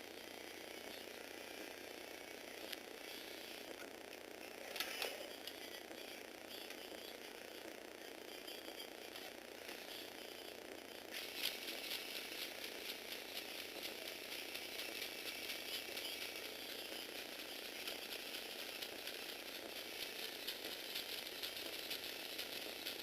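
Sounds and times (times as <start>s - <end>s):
plastic gears clicking and rattling: 11.1s - 23.0s.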